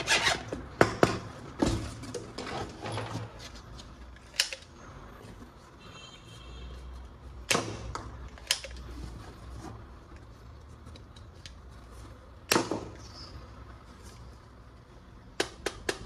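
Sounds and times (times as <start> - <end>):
plastic toy guns clicking: 4.3 - 4.7, 8.3 - 8.8.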